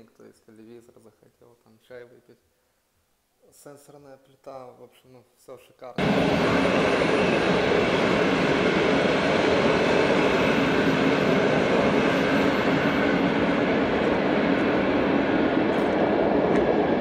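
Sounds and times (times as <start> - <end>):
passenger train rumbling past: 6.0 - 17.0.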